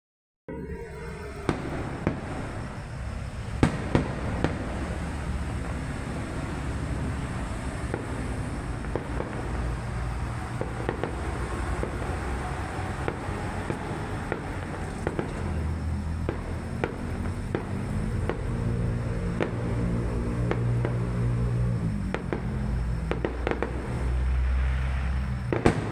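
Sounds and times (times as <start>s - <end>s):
steady low rumble: 0.6s - 25.9s
fireworks bangs and crackles: 1.0s - 25.9s.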